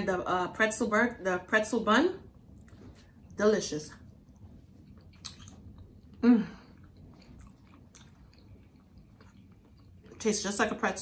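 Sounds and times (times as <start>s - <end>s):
chewing mouth smacks and clicks: 4.3s - 6.1s, 6.8s - 10.2s.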